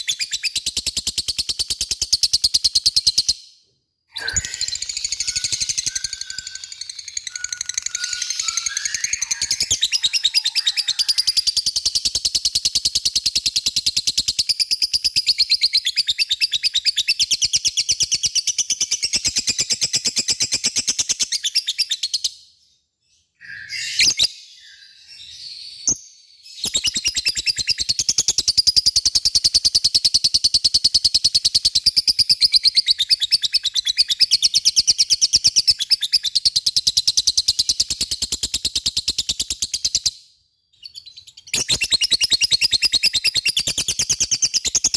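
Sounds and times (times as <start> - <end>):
bird chirps: 4.1 - 44.9
lovebird chattering: 4.2 - 11.5.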